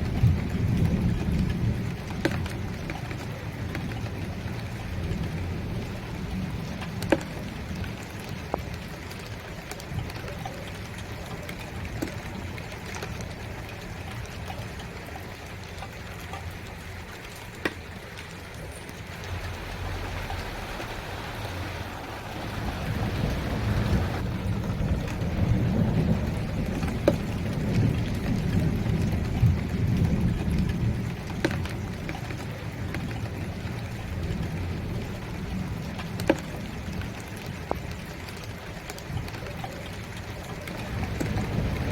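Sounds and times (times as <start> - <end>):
thunder rumble: 0.0 - 9.4, 19.0 - 37.6, 40.1 - 41.9
rain falling: 0.0 - 41.9.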